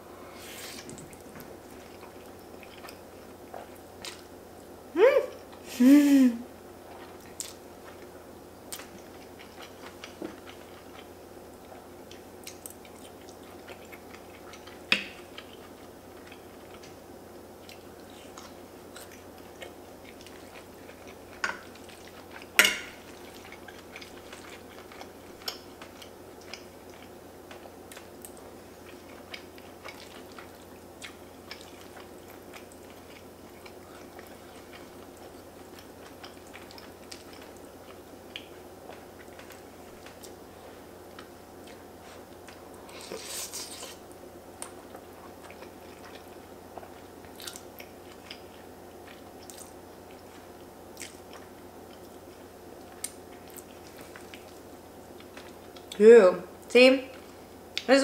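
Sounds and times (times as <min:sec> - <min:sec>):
faint steady hum: 0:00.0 - 0:58.0
person chewing food: 0:00.5 - 0:04.7, 0:06.8 - 0:08.1, 0:08.7 - 0:56.0
cutlery clicking on a plate: 0:22.6 - 0:22.9.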